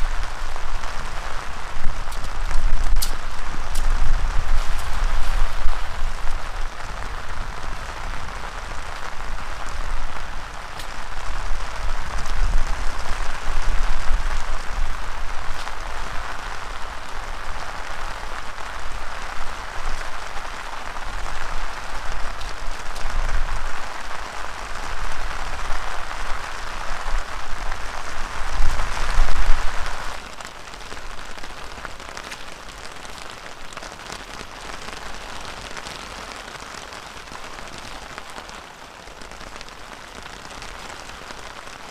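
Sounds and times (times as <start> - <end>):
strong wind gusts: 0.0 - 30.2
heavy rain pouring: 0.0 - 41.9.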